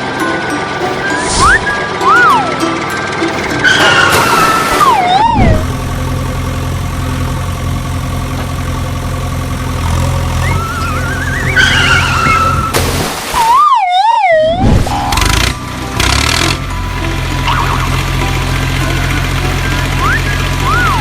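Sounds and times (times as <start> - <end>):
low vehicle engine hum: 0.0 - 13.3, 14.6 - 21.0
siren warble: 0.8 - 6.1, 10.4 - 12.7, 13.4 - 15.6, 17.0 - 18.3, 19.4 - 21.0
wailing siren: 1.1 - 2.8, 3.5 - 5.8, 10.4 - 12.7, 13.4 - 15.4, 17.4 - 18.0, 20.0 - 21.0.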